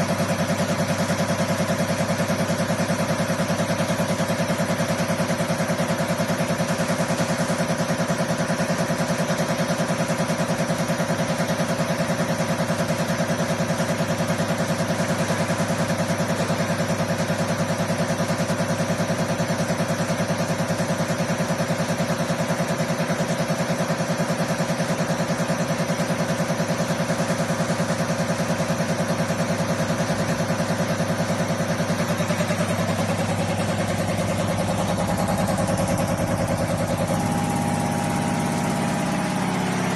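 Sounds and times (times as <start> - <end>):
test bench pump humming: 28.9 - 39.9.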